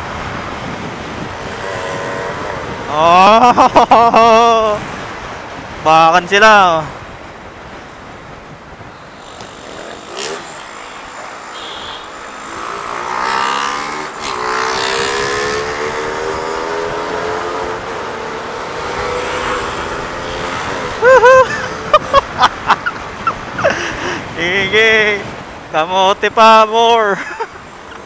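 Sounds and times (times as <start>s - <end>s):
motorcycle engine speeding up: 0.0s - 4.8s, 9.2s - 22.7s
wind rushing over microphone: 0.0s - 26.3s.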